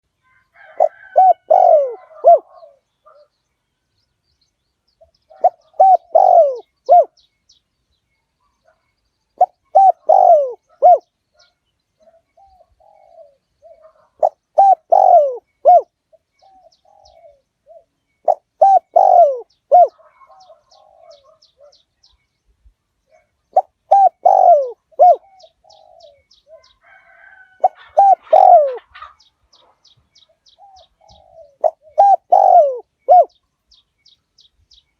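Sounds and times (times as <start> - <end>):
small birds chirping: 0.0 - 34.9
dove cooing: 0.6 - 3.3, 5.0 - 7.2, 9.4 - 11.1, 12.0 - 21.8, 23.1 - 33.4.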